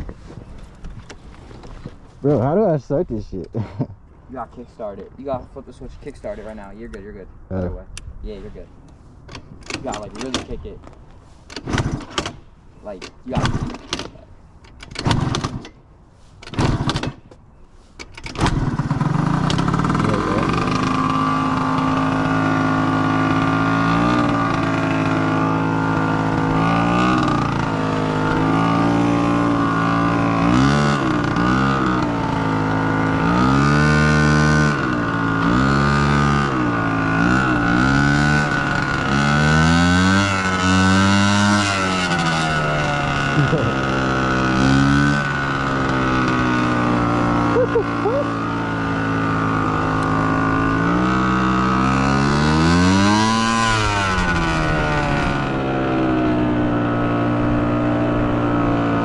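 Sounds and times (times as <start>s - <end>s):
dirt bike engine revving: 18.4s - 59.0s.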